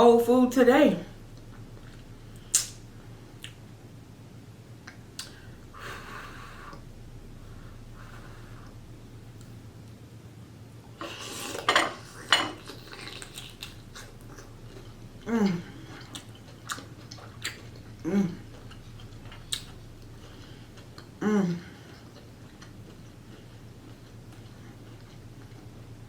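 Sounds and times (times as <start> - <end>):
person chewing: 1.4 - 3.6, 11.0 - 26.0
person humming with enjoyment: 18.0 - 18.5, 21.2 - 21.7.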